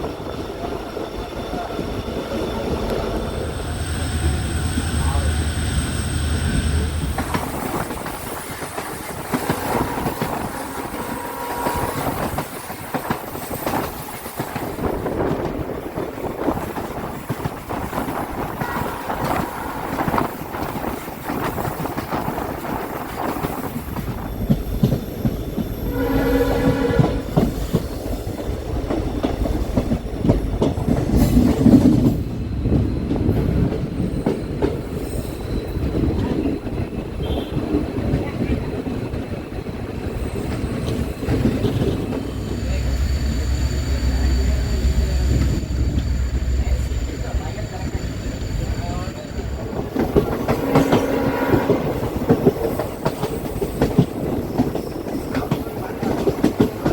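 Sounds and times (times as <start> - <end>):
train rumble: 0.0 - 56.9
train wheels clicking over rail joints: 6.1 - 26.0, 26.6 - 56.9
train horn: 9.1 - 12.6, 18.4 - 20.4, 25.9 - 27.6, 37.2 - 37.7, 50.4 - 52.6.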